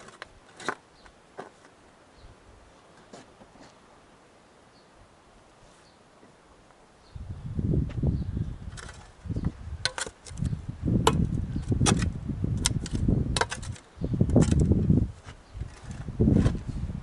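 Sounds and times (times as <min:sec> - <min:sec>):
wind rumble on microphone: 0:07.0 - 0:17.0
masonry pieces clinking: 0:09.8 - 0:10.4.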